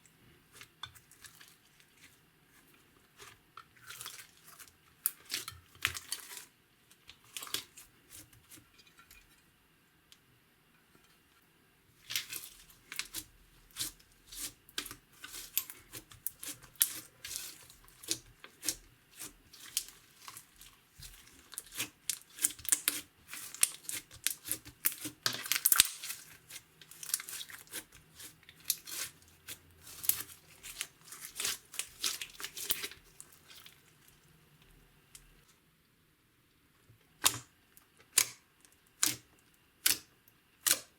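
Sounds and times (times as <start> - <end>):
slime popping and crackling: 12.1 - 33.6.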